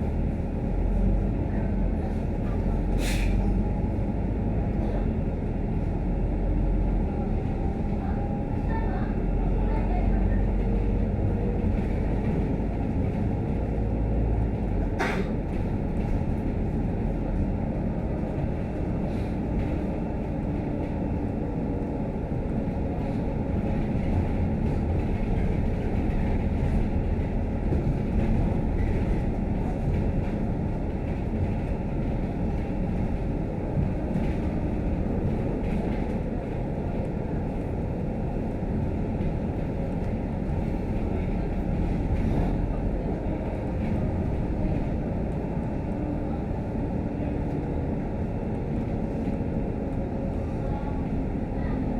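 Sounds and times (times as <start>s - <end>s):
bus engine and road drone: 0.0s - 51.9s.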